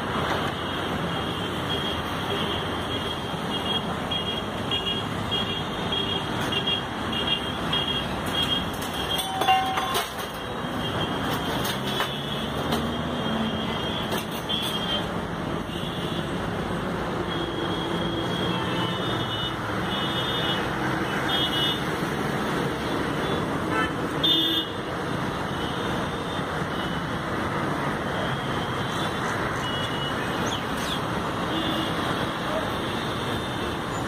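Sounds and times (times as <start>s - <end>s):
road traffic noise: 0.0s - 34.0s
vehicle horn: 23.7s - 24.8s.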